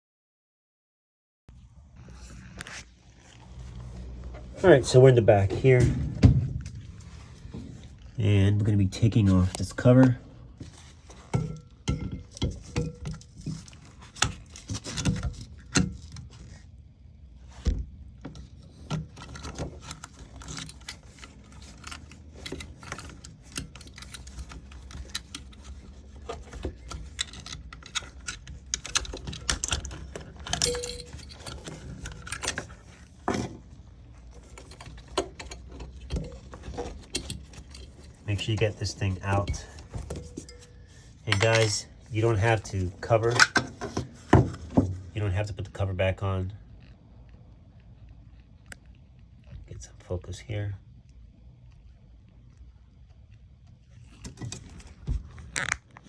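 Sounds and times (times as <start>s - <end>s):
hand tools clicking and tapping: 18.9s - 33.5s, 39.3s - 41.8s.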